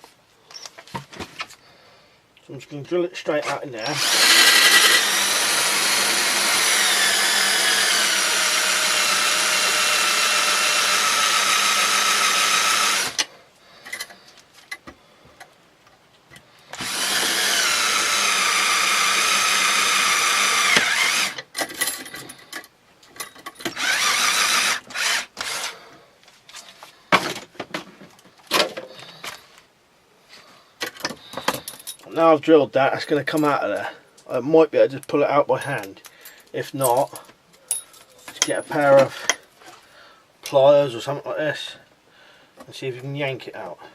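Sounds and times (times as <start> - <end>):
power drill whining: 3.8 - 13.3, 16.6 - 21.5, 23.6 - 26.0.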